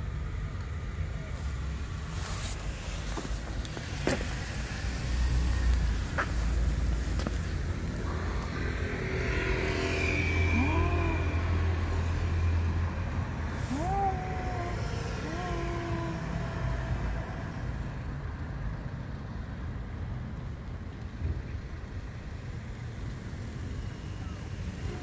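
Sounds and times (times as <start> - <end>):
short meow-like calls: 10.4 - 11.8, 13.6 - 16.8.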